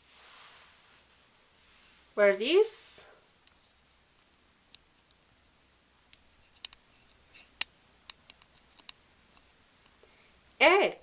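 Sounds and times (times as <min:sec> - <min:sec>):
faint clicks and taps: 0:03.4 - 0:05.3, 0:06.1 - 0:10.6.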